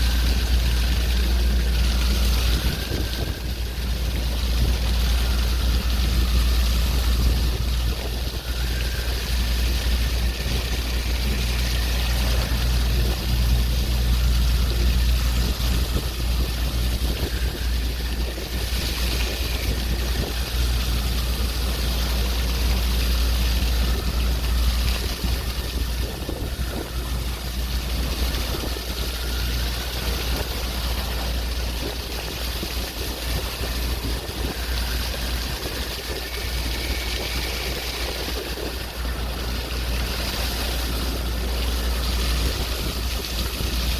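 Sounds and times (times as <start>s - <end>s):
steady low rumble: 0.0s - 43.9s
waves washing: 0.0s - 43.9s.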